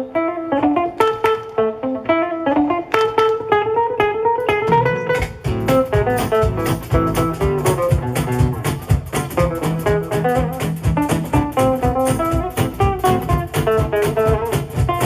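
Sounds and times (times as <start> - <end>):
plucked guitar melody: 0.0 - 15.0
strummed guitar: 0.0 - 15.0
bass notes: 4.6 - 15.0.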